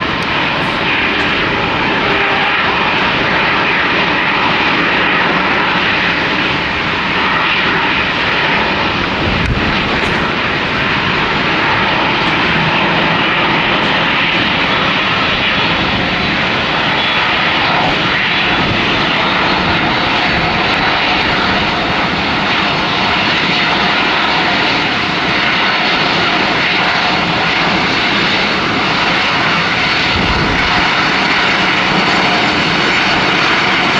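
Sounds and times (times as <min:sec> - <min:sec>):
high fan whine: 0:00.0 - 0:25.0
jet engines roaring: 0:00.0 - 0:33.9.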